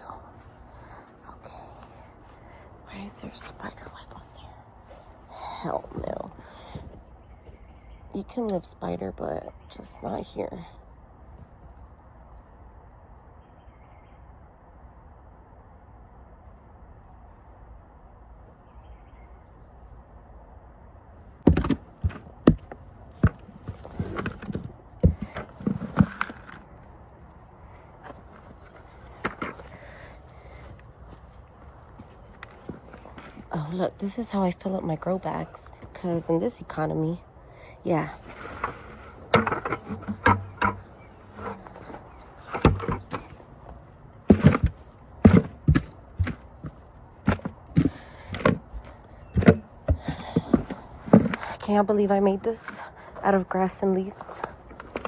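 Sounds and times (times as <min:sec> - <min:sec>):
potting soil scraping and rustling: 0:02.9 - 0:07.6, 0:21.4 - 0:26.9, 0:28.0 - 0:37.1, 0:37.9 - 0:55.0
garden pots knocking: 0:21.4 - 0:26.6, 0:28.1 - 0:30.8, 0:37.9 - 0:55.0
hand tool chopping compost: 0:21.5 - 0:26.6, 0:38.0 - 0:51.8.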